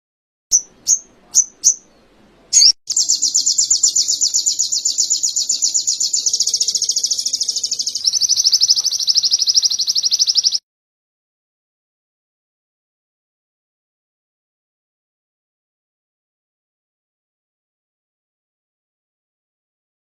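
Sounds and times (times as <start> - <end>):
bird chips and rapid trill: 2.6 - 10.6.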